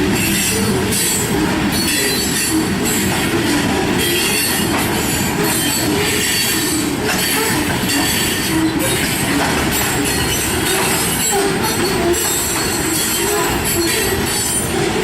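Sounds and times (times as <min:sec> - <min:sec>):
freight train cars rolling: 0:00.0 - 0:15.0
steel wheels squealing on rails: 0:00.0 - 0:15.0.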